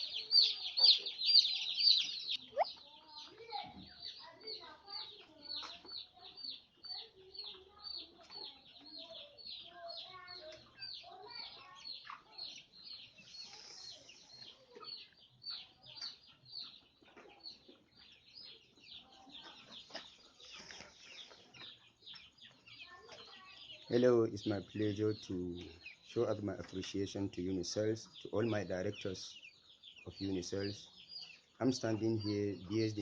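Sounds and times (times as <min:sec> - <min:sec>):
poultry clucking: 0:00.0 - 0:33.0
poultry peeping: 0:00.0 - 0:33.0.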